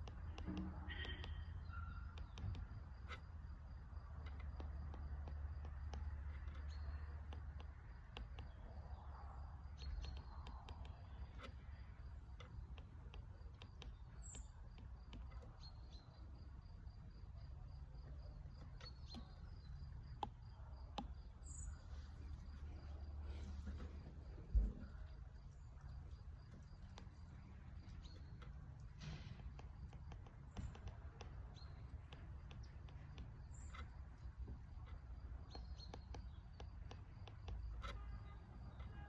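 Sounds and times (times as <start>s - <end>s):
cricket chirping: 0.9s - 39.0s.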